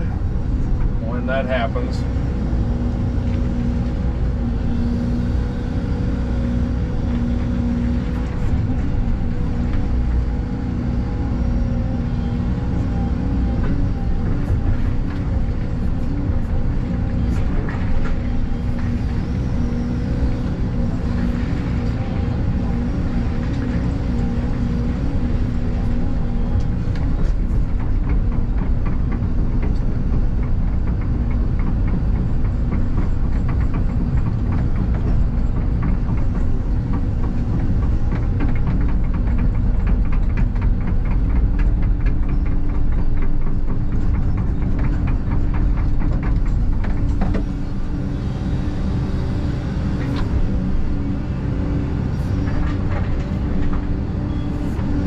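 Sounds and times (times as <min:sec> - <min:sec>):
excavator engine and hydraulics: 0:00.0 - 0:55.0
rapid clicking and clatter: 0:26.6 - 0:47.9.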